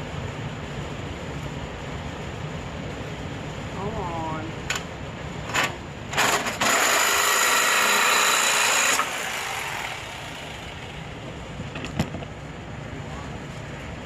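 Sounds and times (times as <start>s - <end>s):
power tool cutting exhaust pipe: 5.5s - 10.7s.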